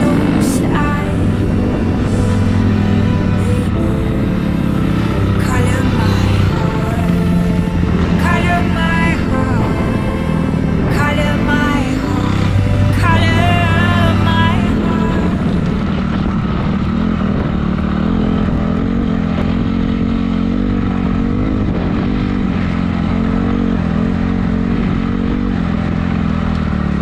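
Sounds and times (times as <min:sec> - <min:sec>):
motocross bike engine running: 0:15.7 - 0:27.0.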